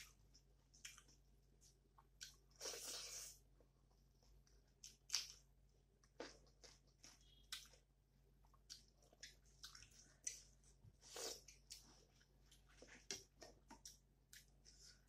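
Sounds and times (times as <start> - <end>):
wet chewing and mouth smacks: 2.0 - 3.3, 4.7 - 7.8, 8.4 - 14.6.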